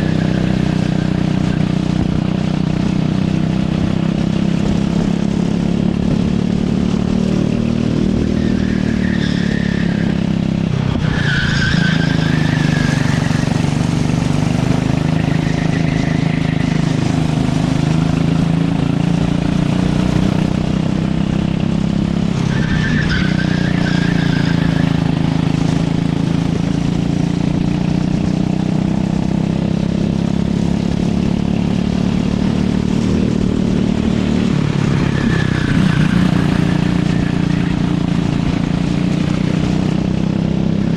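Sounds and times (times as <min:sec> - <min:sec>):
go-kart engine running hard: 0:00.0 - 0:40.9
tyres squealing: 0:10.9 - 0:18.0, 0:22.4 - 0:25.2, 0:34.8 - 0:38.2.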